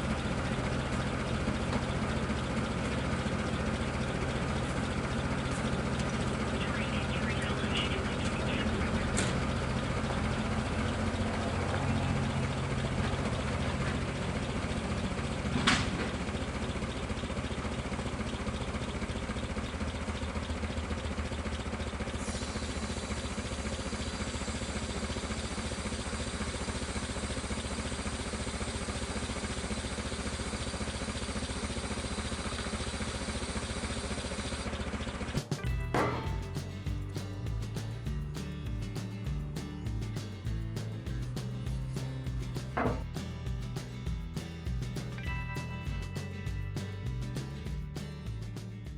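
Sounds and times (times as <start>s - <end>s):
vehicle engine idling: 0.0s - 48.9s
knock: 35.6s - 36.7s, 42.7s - 43.1s.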